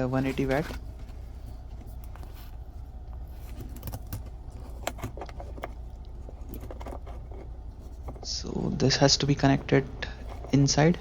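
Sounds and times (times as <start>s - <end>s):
steady low rumble: 0.0s - 11.0s
plug and cable clicks and rattles: 3.5s - 8.2s.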